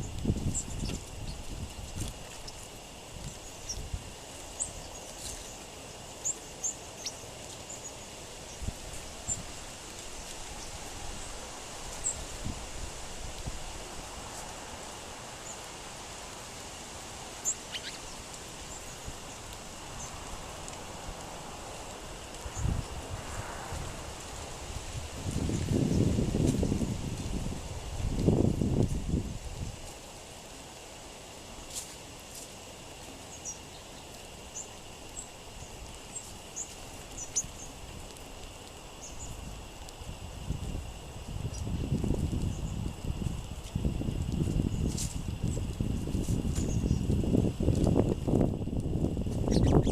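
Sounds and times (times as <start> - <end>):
songbird chips: 0.0 - 49.9
wind rustling leaves: 0.0 - 49.9
songbird chip calls: 17.4 - 19.0, 33.3 - 37.7, 49.4 - 49.9.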